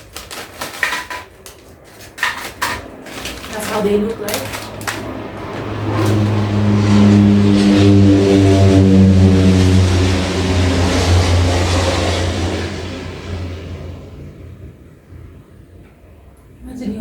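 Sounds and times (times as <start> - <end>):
vehicle engine droning: 3.6 - 15.4.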